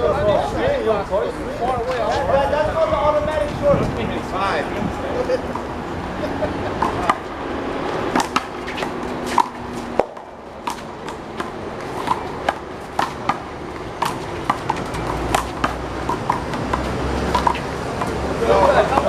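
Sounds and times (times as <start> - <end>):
handball slapping and bouncing: 6.8 - 19.0.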